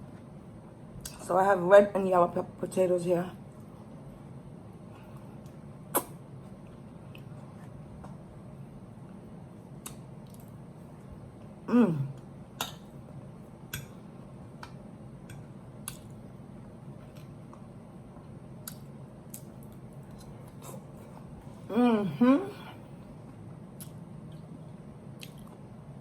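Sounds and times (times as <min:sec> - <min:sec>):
person humming: 0:11.7 - 0:12.2, 0:21.7 - 0:22.8
chewing: 0:25.2 - 0:25.6.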